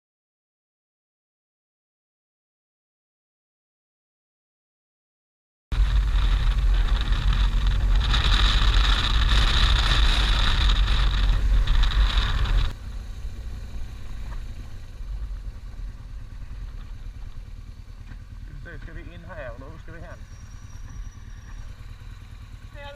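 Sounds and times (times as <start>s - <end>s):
wind rush on microphone: 5.7s - 12.8s
motorcycle engine rumble: 5.7s - 22.9s.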